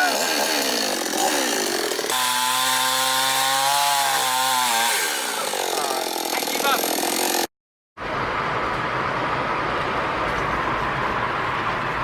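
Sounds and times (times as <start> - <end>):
chainsaw running: 0.0 - 7.5.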